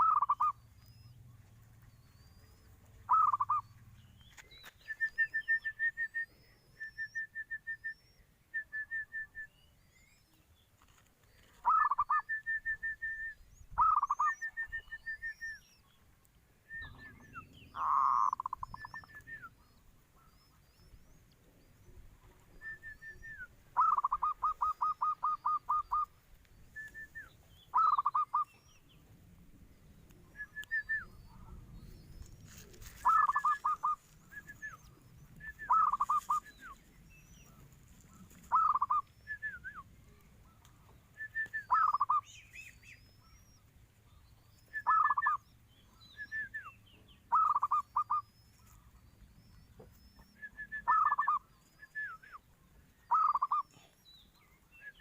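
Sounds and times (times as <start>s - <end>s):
dove cooing: 0.0s - 1.1s, 2.4s - 3.9s, 11.5s - 15.4s, 16.8s - 20.7s, 21.4s - 26.1s, 26.7s - 28.6s, 30.6s - 36.8s, 37.4s - 43.4s, 44.7s - 45.4s, 47.3s - 48.8s, 50.2s - 52.3s, 53.1s - 54.0s
small birds chirping: 0.0s - 55.0s.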